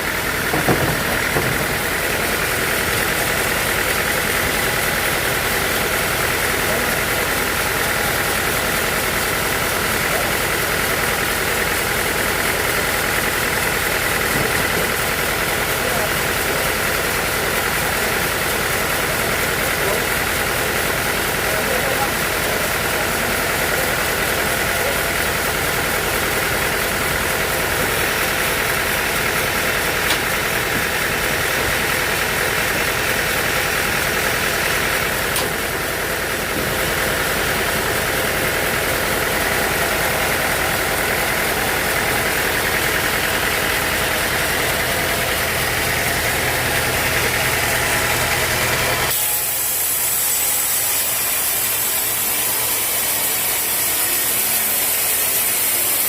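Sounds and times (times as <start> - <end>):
hissy machine noise: 0.0 - 8.4
engine running steadily: 0.0 - 56.0.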